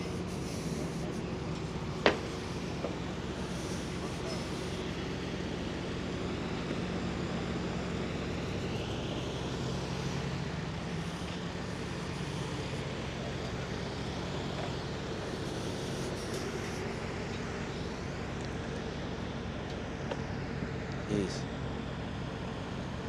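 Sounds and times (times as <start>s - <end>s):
generator engine droning: 0.0s - 23.0s.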